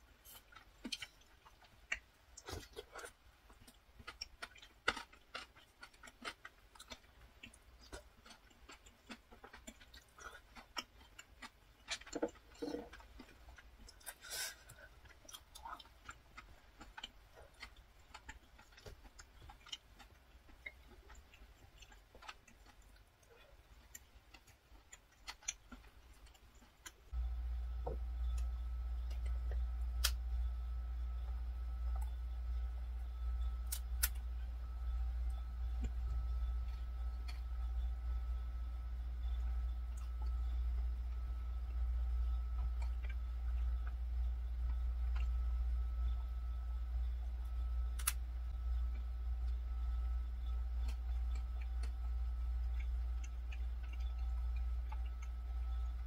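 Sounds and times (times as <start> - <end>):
steady low hum: 0.0 - 56.0
person chewing noodles: 0.1 - 27.2, 50.4 - 56.0.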